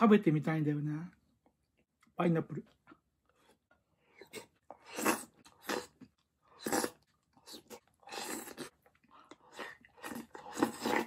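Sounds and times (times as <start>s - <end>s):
person chewing and eating: 2.9s - 11.0s.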